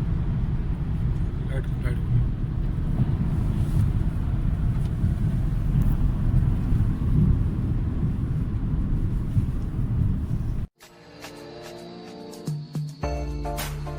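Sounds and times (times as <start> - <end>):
diesel car engine rumble: 0.0 - 10.7.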